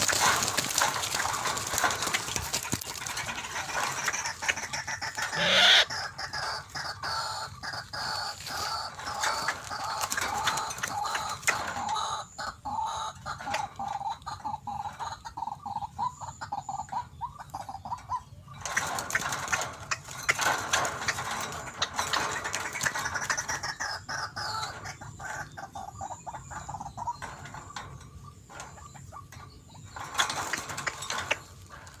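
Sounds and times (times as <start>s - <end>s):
waterhen calling: 0.0s - 13.1s.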